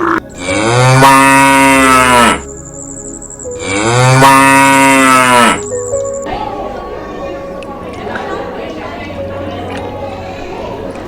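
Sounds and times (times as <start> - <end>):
cow mooing: 0.0 - 2.5, 3.6 - 5.6.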